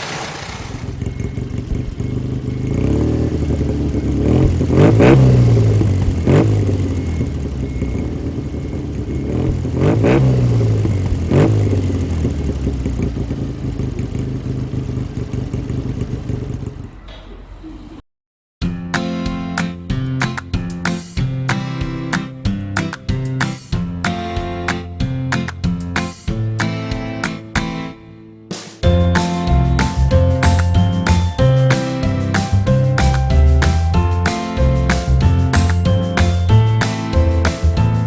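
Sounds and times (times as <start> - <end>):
car engine idling and revving: 0.0 - 17.1.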